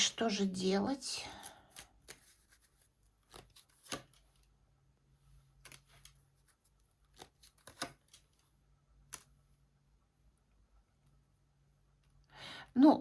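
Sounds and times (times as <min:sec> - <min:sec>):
card snaps and flicks: 0:03.3 - 0:04.2, 0:07.2 - 0:08.2.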